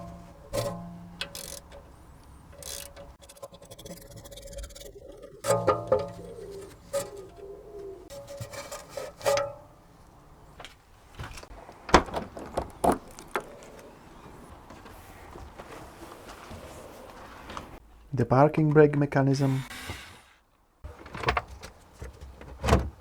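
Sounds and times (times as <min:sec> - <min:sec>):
metallic clanks of hand tools: 0:00.0 - 0:03.2, 0:05.4 - 0:07.4.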